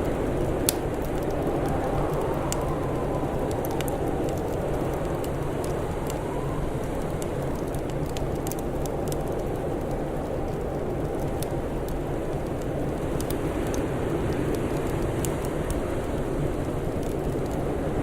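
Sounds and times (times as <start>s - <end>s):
dense rushing noise: 0.0s - 18.0s
fire crackling and popping: 0.0s - 18.0s.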